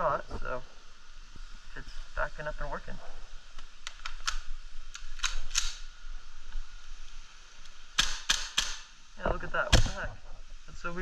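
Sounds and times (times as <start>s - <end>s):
airsoft rifle shots snapping: 3.8s - 5.9s, 7.9s - 9.0s, 9.7s - 10.1s.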